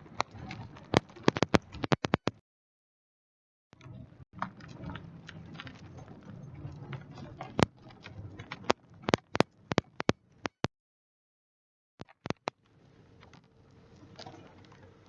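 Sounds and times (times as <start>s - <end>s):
sharp clicks or taps: 12.0s - 12.5s.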